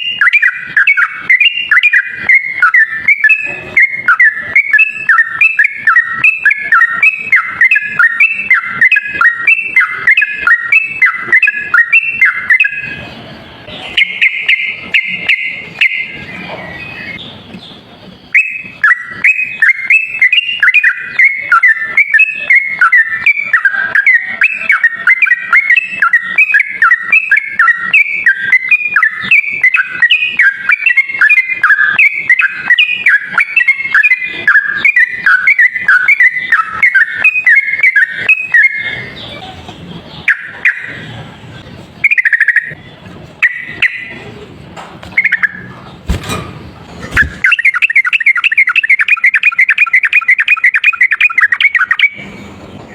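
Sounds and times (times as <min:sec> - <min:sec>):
bird warbling song: 0:00.0 - 0:44.4, 0:45.0 - 0:52.9
sharp knock: 0:46.1 - 0:47.5.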